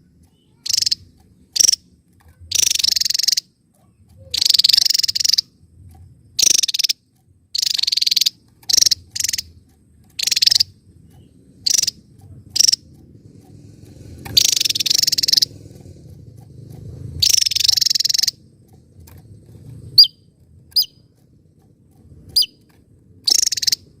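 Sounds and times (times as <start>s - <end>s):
songbird rattling calls: 0.0s - 24.0s
thin whistled bird notes: 14.3s - 15.6s, 22.3s - 22.6s, 23.2s - 23.9s.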